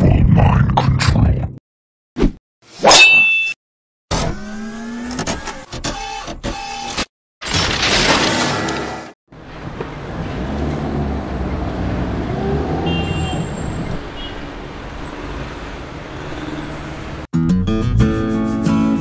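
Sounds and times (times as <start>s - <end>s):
vehicles passing on street: 8.4s - 17.3s.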